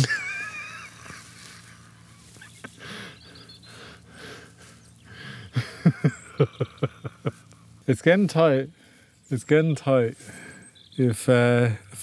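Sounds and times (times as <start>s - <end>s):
wavering bird call: 2.3s - 5.4s.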